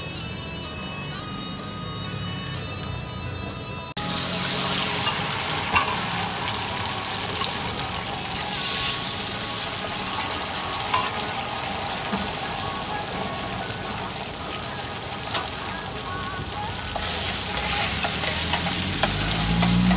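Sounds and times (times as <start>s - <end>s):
food sizzling in hot oil: 4.0s - 19.9s.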